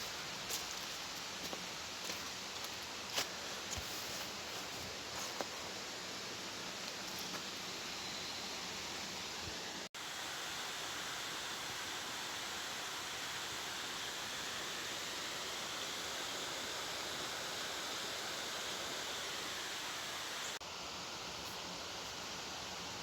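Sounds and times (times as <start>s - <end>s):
flowing water rushing: 8.6s - 20.6s.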